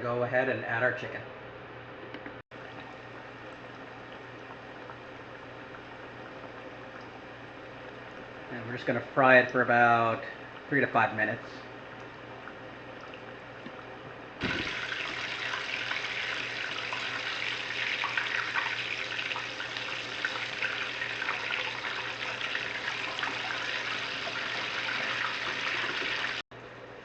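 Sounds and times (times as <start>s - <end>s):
chicken frying in hot oil: 14.4s - 26.4s.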